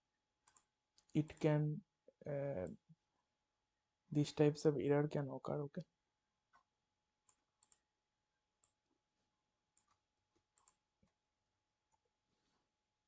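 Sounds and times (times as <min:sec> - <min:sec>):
computer mouse clicks: 0:00.4 - 0:01.1, 0:07.3 - 0:07.8, 0:09.8 - 0:10.8.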